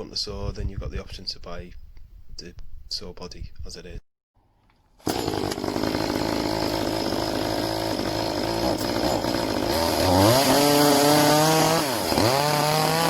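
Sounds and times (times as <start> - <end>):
chainsaw idling and revving: 5.0 - 13.0.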